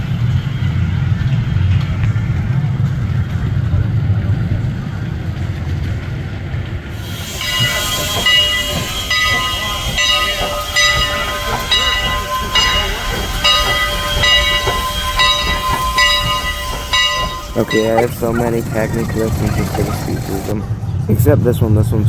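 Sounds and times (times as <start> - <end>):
steam hissing: 6.9 - 21.0
locomotive bell ringing: 7.0 - 22.0.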